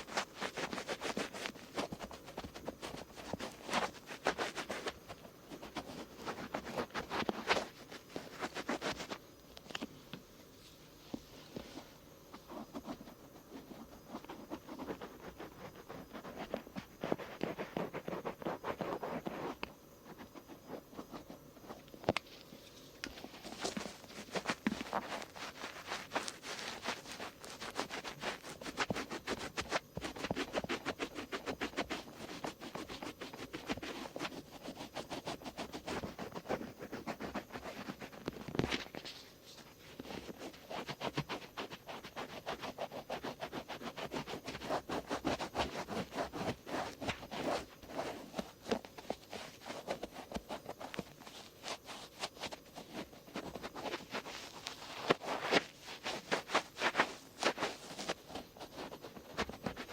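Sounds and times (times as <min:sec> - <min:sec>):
cotton swabs rubbing ear: 0:23.0 - 0:38.6, 0:39.9 - 0:59.9.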